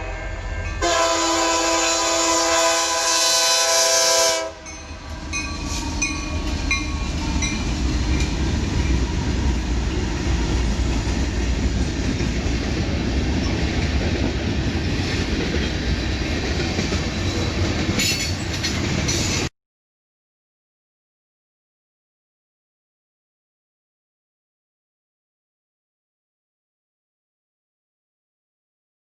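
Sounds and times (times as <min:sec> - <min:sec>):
train horn blast: 0:00.0 - 0:07.8
train wheels rumbling on rails: 0:00.0 - 0:19.5.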